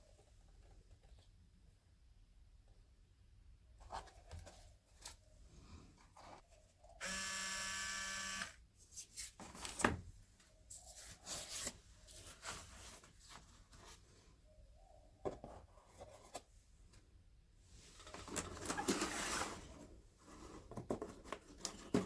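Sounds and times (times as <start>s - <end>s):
small electric motor buzzing: 7.0s - 8.6s.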